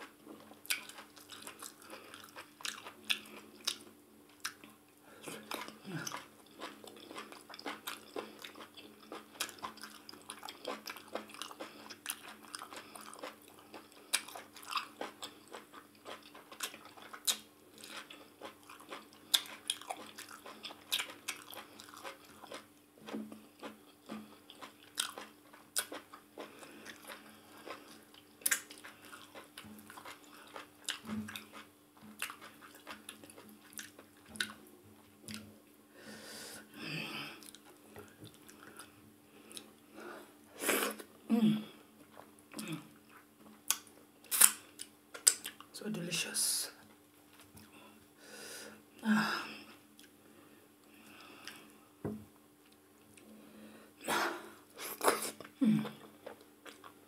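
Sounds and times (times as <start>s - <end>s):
wet chewing: 0.5s - 34.6s
lip smacks and mouth clicks: 28.4s - 34.6s, 43.6s - 45.7s.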